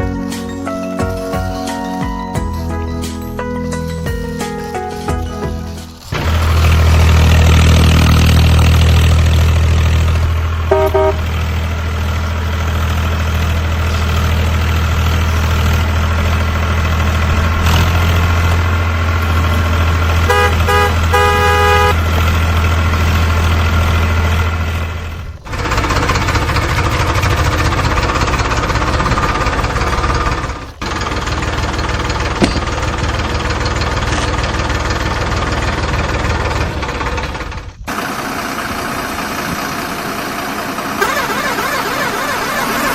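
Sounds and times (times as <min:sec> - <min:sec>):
vehicle engine humming: 0:00.0 - 0:42.9
horn honking: 0:10.6 - 0:11.8, 0:19.2 - 0:34.5, 0:41.0 - 0:42.9.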